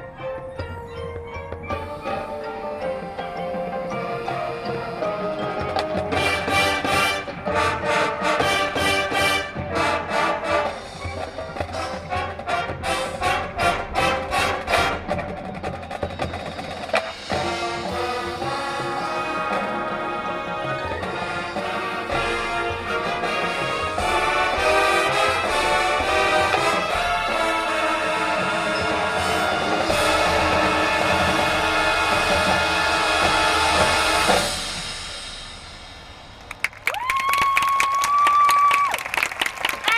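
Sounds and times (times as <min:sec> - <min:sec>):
marching band playing: 0:00.0 - 0:38.5
loud percussion hits: 0:05.0 - 0:36.9.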